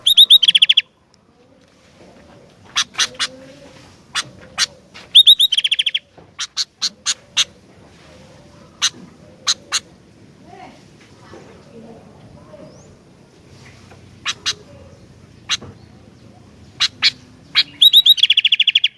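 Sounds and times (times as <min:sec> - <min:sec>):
bird rattling song: 0:00.0 - 0:00.9, 0:02.7 - 0:03.4, 0:04.0 - 0:07.6, 0:08.8 - 0:09.9, 0:13.7 - 0:18.9
sharp bird chirps: 0:00.0 - 0:00.9, 0:05.1 - 0:06.7, 0:16.8 - 0:18.9.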